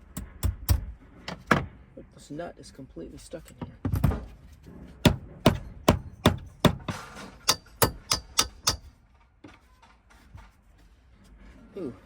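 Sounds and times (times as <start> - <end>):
hammer striking metal: 5.0 - 8.9.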